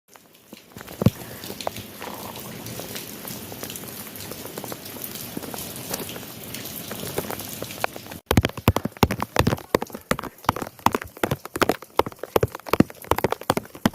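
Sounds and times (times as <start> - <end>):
rain falling steadily: 0.1 - 13.9
loud sharp taps: 8.3 - 13.9.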